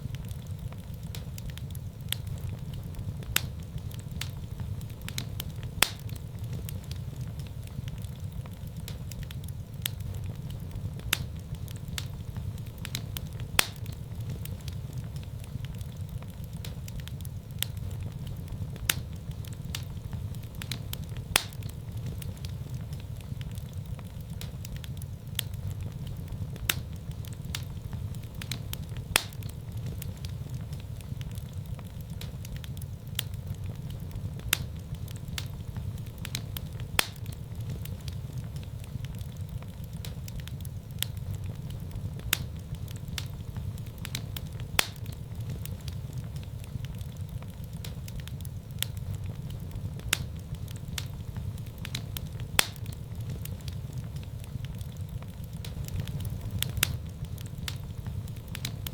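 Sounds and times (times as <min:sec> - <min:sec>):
fire crackling and popping: 0:00.0 - 0:58.9
fire rumbling in a fireplace: 0:00.0 - 0:58.9.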